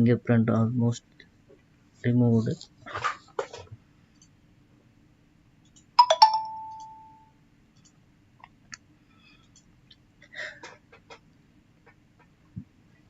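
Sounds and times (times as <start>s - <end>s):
faint clicks and handling noises: 7.7s - 13.0s.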